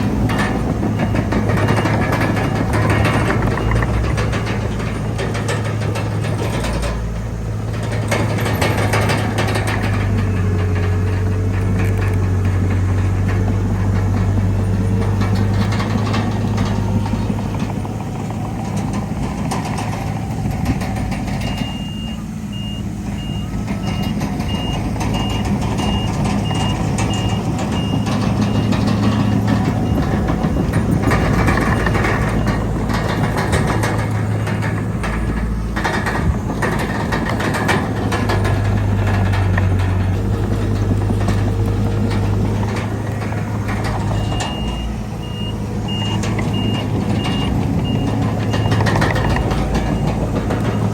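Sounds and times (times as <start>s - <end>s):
heavy diesel machinery running: 0.0s - 50.9s
machinery clattering: 0.0s - 50.9s
backup alarm beeping: 21.3s - 33.3s, 44.1s - 50.2s.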